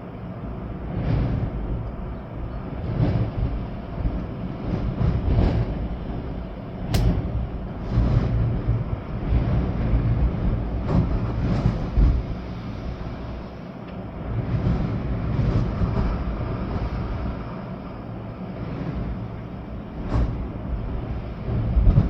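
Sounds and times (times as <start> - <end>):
storm wind buffeting microphone: 0.1 - 22.0
sharp tick: 6.9 - 7.3.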